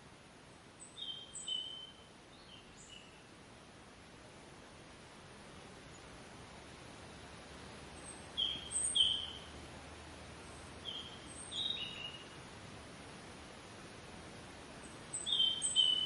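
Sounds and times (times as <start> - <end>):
outdoor background hiss: 0.0 - 16.0
small birds chirping: 0.6 - 3.4, 7.2 - 9.7, 10.3 - 12.5, 14.8 - 16.0.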